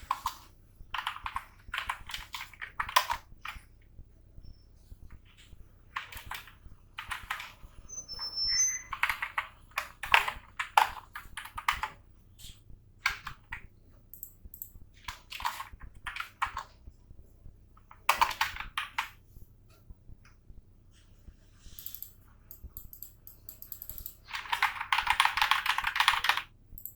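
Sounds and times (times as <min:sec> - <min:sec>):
computer keyboard typing: 0:00.0 - 0:03.7, 0:05.9 - 0:12.0, 0:13.0 - 0:16.8, 0:17.8 - 0:19.2, 0:21.7 - 0:26.9.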